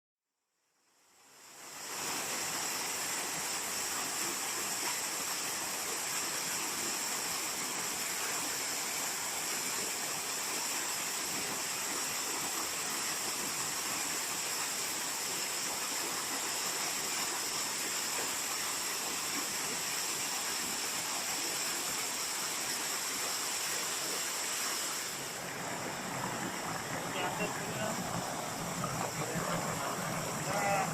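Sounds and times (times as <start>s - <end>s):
waterfall rushing: 20.8s - 30.9s.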